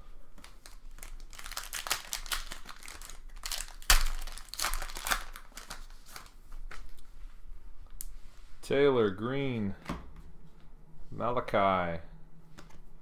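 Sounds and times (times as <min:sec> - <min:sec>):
foil wrappers crinkling and tearing: 0:00.4 - 0:07.0.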